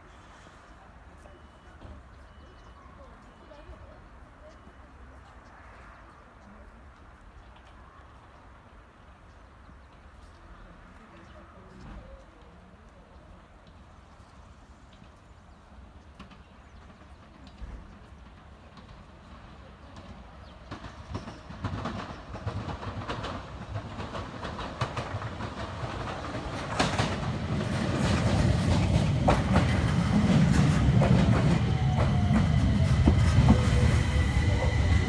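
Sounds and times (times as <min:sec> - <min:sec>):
wheels clacking over rail joints: 0:16.0 - 0:35.0
electric train rumble: 0:16.8 - 0:35.0.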